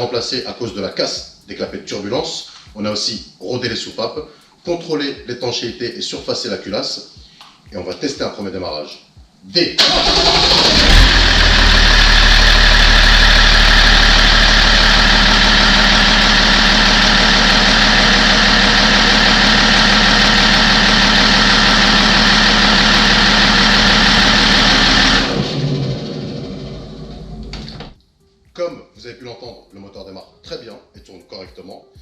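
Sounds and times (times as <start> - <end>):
diesel engine running: 9.8 - 28.0.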